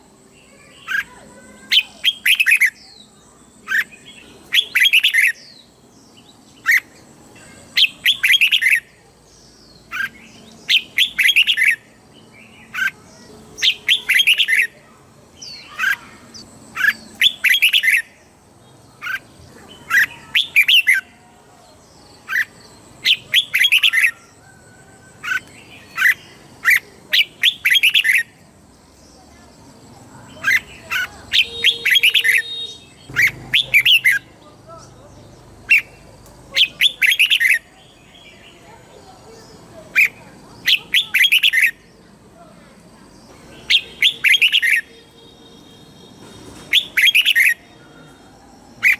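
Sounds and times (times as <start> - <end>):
bird whistled song: 0.6 - 9.0, 9.9 - 11.9, 13.6 - 14.8, 15.4 - 18.2, 19.0 - 21.1, 22.2 - 28.4, 30.3 - 38.8, 40.0 - 42.0, 43.6 - 48.9.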